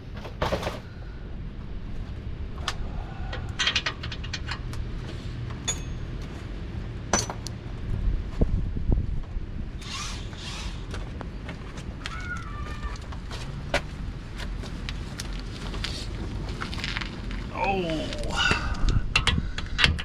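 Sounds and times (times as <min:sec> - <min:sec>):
hand tools clinking on metal: 0:05.6 - 0:06.2.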